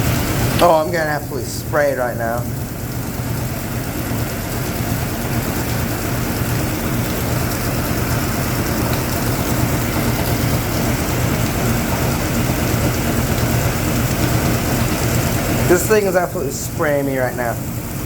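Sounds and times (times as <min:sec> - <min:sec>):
washing machine motor hum: 0:00.0 - 0:18.0.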